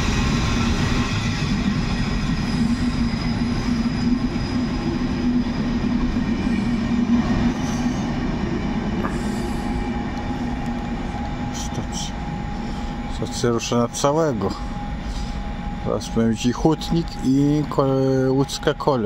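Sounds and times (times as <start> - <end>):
steady low hum: 0.0 - 19.0
train wheels rumbling on rails: 0.0 - 19.0.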